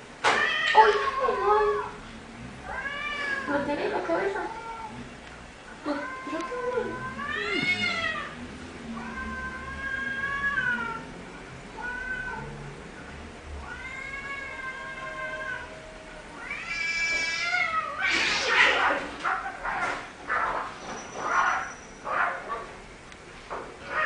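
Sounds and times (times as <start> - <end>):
cat yowling: 5.9 - 8.4, 13.6 - 22.5.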